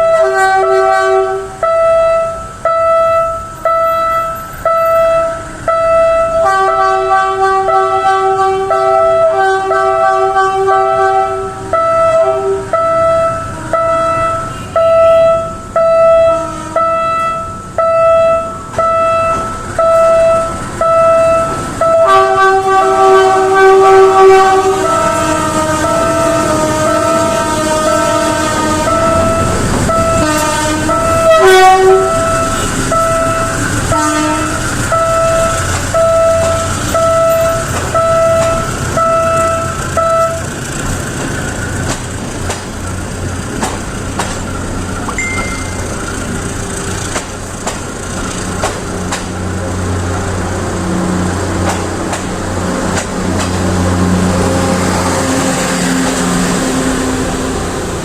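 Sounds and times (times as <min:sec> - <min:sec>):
train horn tooting: 0:00.0 - 0:40.5, 0:53.3 - 0:57.8
train engine drone: 0:00.0 - 0:58.0
wheels clicking over rail joints: 0:30.9 - 0:54.4.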